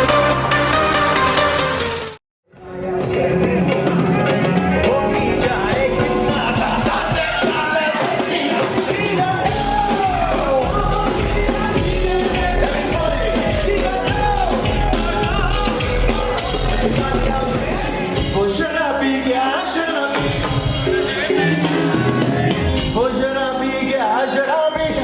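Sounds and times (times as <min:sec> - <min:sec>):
live pop music: 0:00.0 - 0:25.0
person singing: 0:02.5 - 0:25.0
heavy bass drum: 0:04.9 - 0:19.3.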